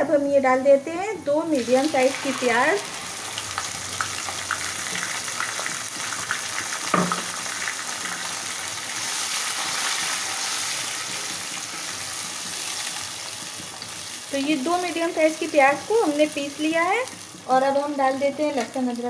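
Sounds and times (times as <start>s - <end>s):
onion paste sizzling in oil: 1.0s - 19.0s
knock: 6.9s - 7.3s.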